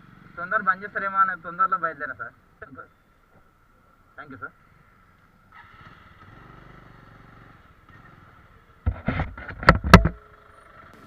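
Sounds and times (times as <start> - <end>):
motorcycle engine running low: 5.6 - 11.0.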